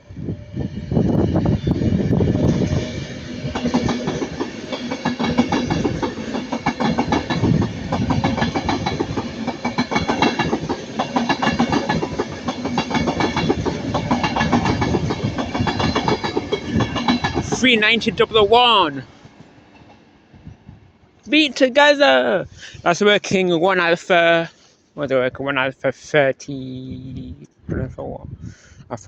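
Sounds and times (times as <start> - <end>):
train rumble: 0.0 - 22.4
wheels clattering over rail joints: 3.4 - 18.2.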